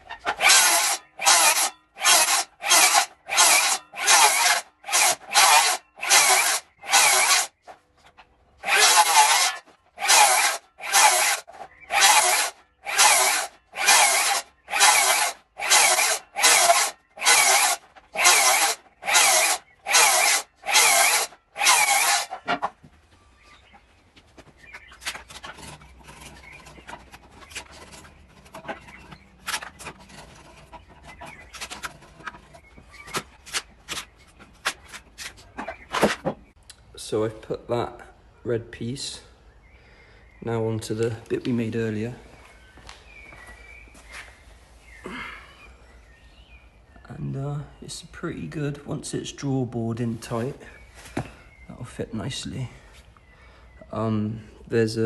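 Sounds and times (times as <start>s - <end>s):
hand saw cutting wood: 0.0s - 7.6s, 8.6s - 22.7s, 25.0s - 36.2s.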